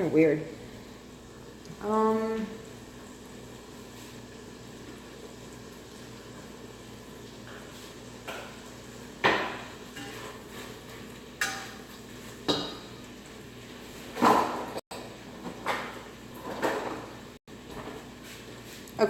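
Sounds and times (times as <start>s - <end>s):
pots and pans clinking: 7.4s - 13.0s, 14.1s - 18.1s.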